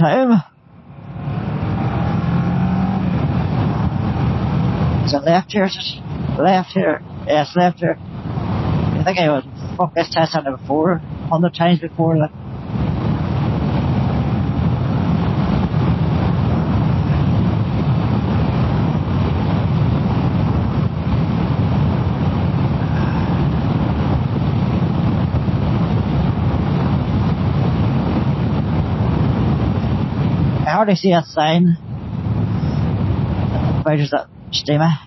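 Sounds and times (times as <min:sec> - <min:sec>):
road noise: 0:00.0 - 0:35.0
wind rush over microphone: 0:00.0 - 0:35.0.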